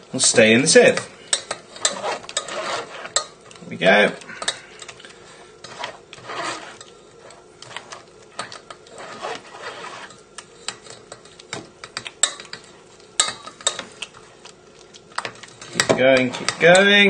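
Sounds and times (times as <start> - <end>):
spatula scraping a mesh sieve: 0.4 - 11.5, 15.6 - 16.9.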